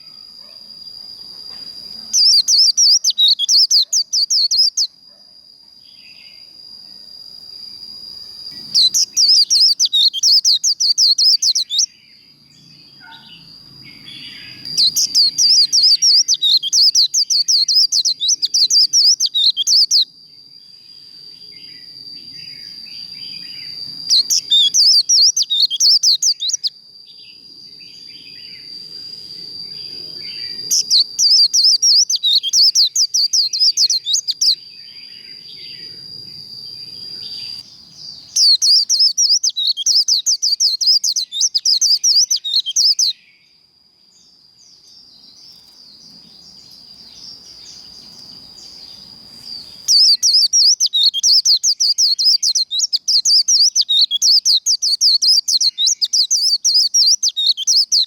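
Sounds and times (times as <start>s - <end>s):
bird high whistle: 1.2s - 5.0s, 8.2s - 12.2s, 12.9s - 20.1s, 21.0s - 35.9s, 38.2s - 43.4s, 48.6s - 58.0s
fast high-pitched bird trills: 1.8s - 5.0s, 8.3s - 12.0s, 13.0s - 20.1s, 22.2s - 26.8s, 30.2s - 34.6s, 38.3s - 43.2s, 49.5s - 58.0s.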